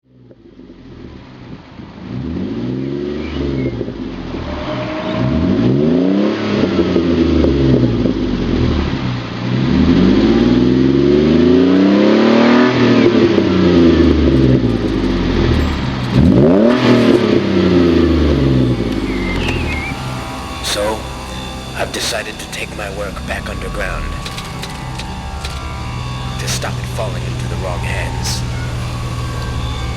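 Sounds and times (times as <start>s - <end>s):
car engine revving: 0.5s - 29.9s.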